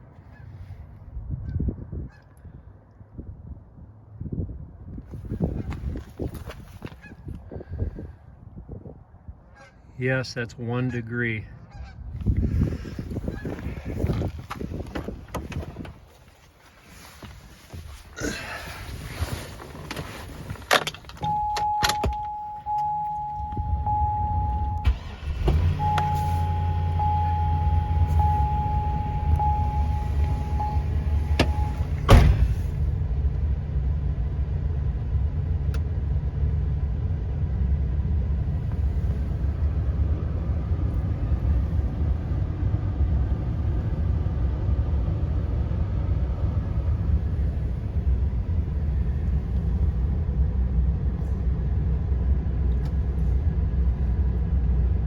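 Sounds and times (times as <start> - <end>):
engine starting and idling: 20.7 - 34.4
warning chime tone: 21.2 - 31.9.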